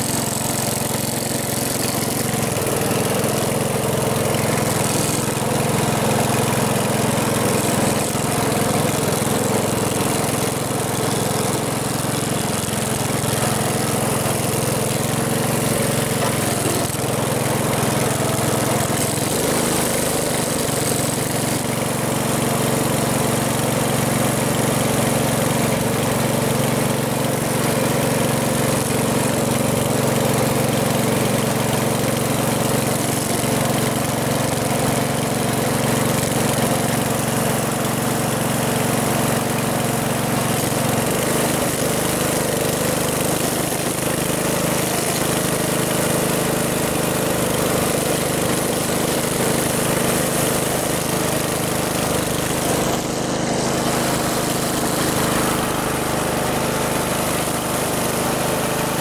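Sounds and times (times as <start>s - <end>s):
car engine running: 48.3s - 59.0s.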